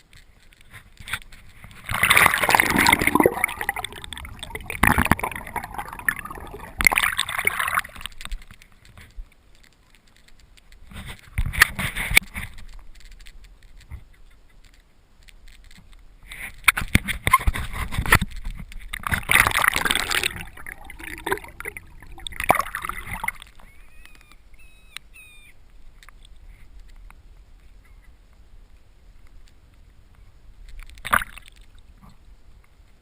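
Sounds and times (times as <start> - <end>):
water splashing against kayak: 0.0 - 9.3, 15.6 - 23.7.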